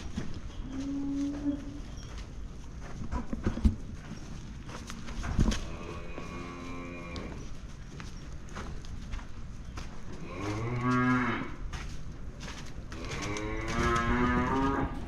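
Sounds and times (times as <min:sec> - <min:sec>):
cow mooing: 0:10.3 - 0:11.6, 0:13.0 - 0:15.0.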